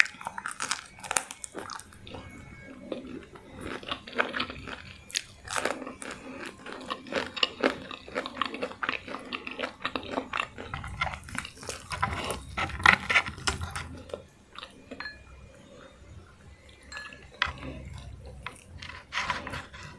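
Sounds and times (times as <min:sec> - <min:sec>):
person chewing food: 0:00.0 - 0:19.9.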